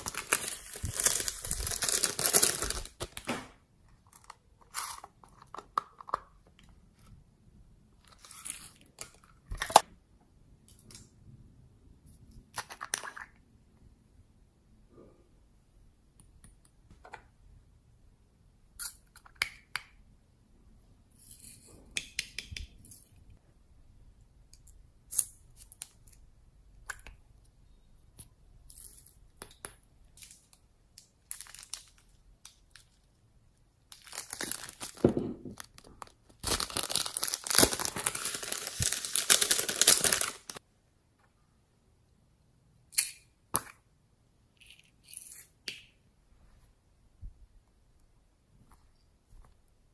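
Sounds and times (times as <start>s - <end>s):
slime crackling and tearing: 36.4s - 40.6s.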